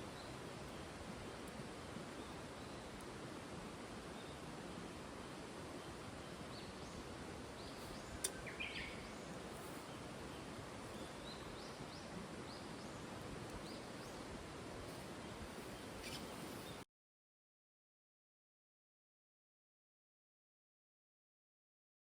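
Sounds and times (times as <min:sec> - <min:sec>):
steady outdoor hiss: 0:00.0 - 0:16.8
bird chirping: 0:07.6 - 0:13.0, 0:15.6 - 0:16.8.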